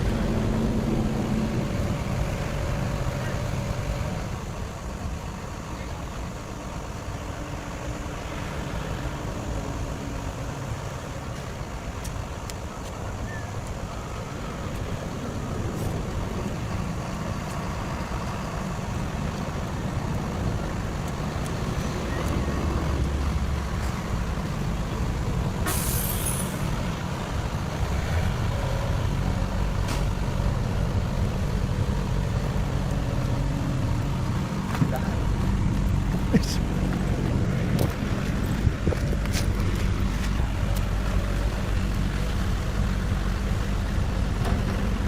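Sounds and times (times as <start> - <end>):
heavy diesel engines running: 0.0 - 45.0
air hiss: 25.6 - 26.8.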